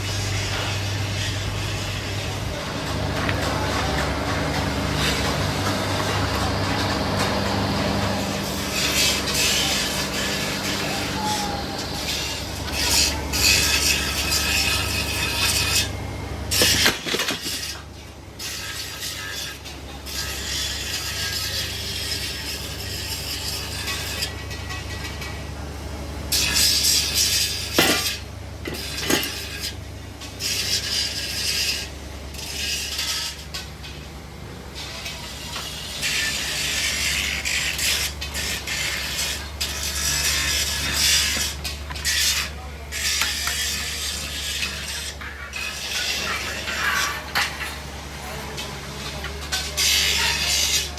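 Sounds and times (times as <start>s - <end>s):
high whine: 0.0s - 17.0s
scraping rasping noise: 0.0s - 25.4s, 26.3s - 34.1s, 34.8s - 50.9s
machinery humming: 0.0s - 50.9s.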